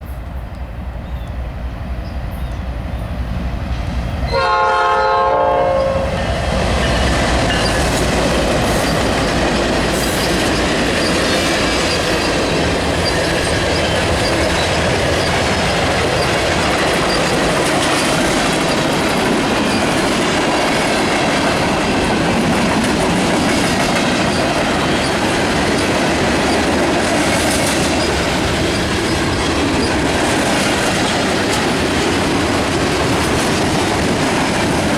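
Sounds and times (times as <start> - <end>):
freight train rumble: 0.0 - 34.9
train wheels clattering on rails: 0.0 - 34.9
locomotive horn: 4.3 - 6.3.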